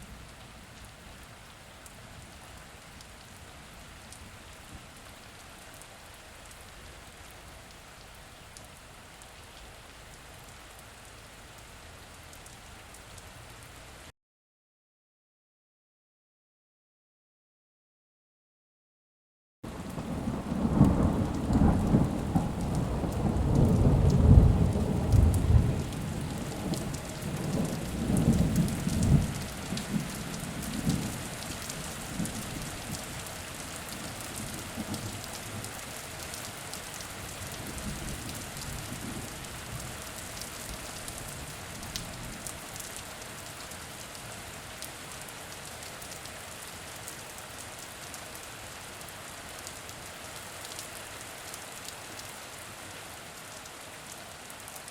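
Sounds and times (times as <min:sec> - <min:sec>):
steady rain falling: 0:00.0 - 0:14.1, 0:19.6 - 0:54.9
rolling thunder rumble: 0:19.8 - 0:31.2.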